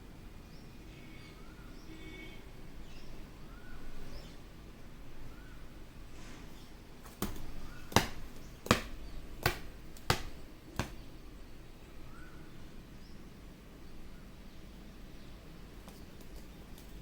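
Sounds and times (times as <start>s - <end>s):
parakeet beak tapping on mirror: 7.1s - 11.1s.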